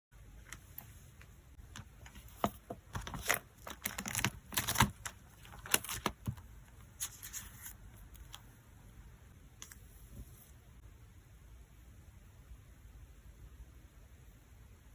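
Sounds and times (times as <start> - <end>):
plastic sleeves crinkling and clicking: 0.4 - 8.5.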